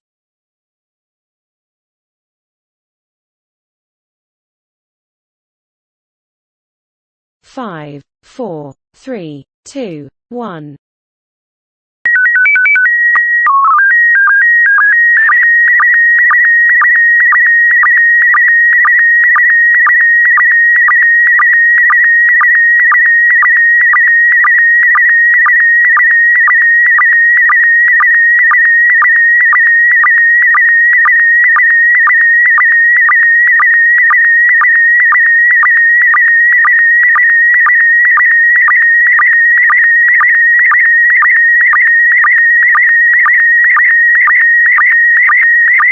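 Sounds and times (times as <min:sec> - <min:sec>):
warbling data tone: 0:12.1 - 0:41.8
stepped beeps: 0:12.1 - 0:45.9
sync pulse ticking: 0:13.6 - 0:41.8.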